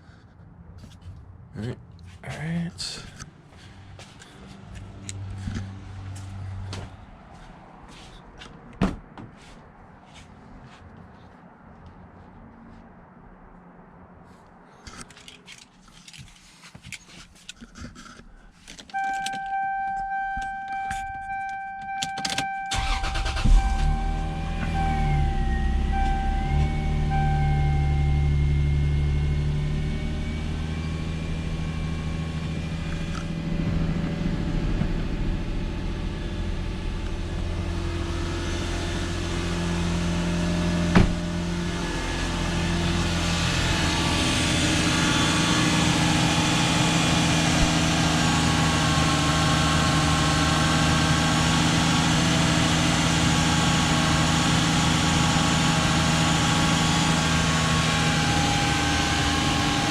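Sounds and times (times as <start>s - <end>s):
car engine idling: 22.7s - 59.9s.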